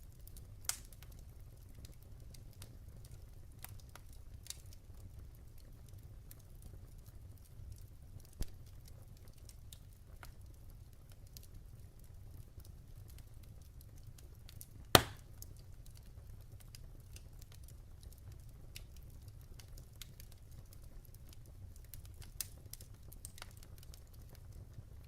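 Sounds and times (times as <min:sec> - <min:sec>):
wood fire crackling: 0:00.0 - 0:25.0
loud pop from fire: 0:15.0 - 0:15.3.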